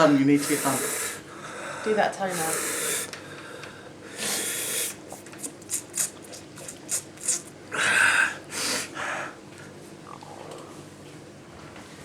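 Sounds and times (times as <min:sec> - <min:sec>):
man breathing hard: 0:00.4 - 0:05.0, 0:07.7 - 0:09.4.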